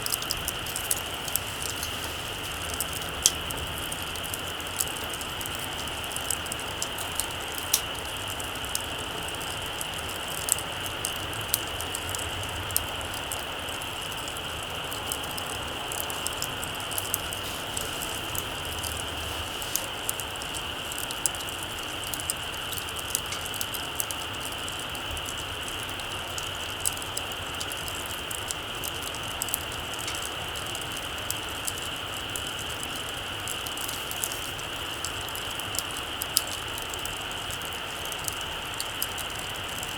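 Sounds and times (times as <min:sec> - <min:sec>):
steady high hiss: 0:00.0 - 0:08.7, 0:14.8 - 0:23.0
campfire crackling: 0:00.0 - 0:39.9
fire pops and snaps: 0:00.0 - 0:39.9.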